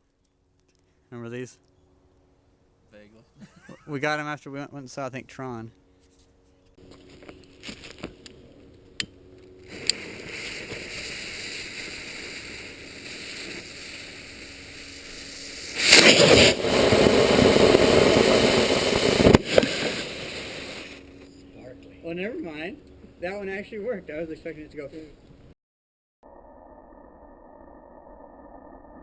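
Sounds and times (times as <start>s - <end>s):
firework fuse hissing: 7.0s - 8.3s, 9.6s - 21.2s
firework rushing hiss: 7.6s - 8.2s, 9.6s - 21.2s
firework sharp crack: 9.0s - 21.2s.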